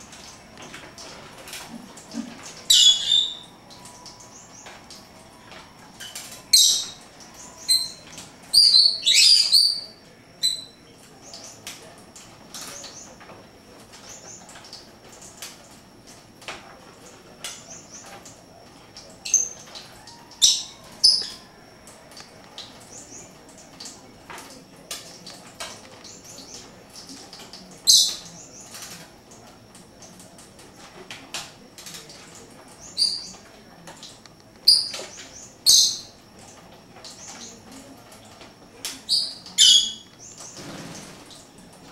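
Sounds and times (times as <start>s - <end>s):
birds chirping: 1.9s - 15.4s, 17.4s - 21.6s, 22.2s - 29.0s, 32.0s - 36.4s, 38.9s - 41.8s.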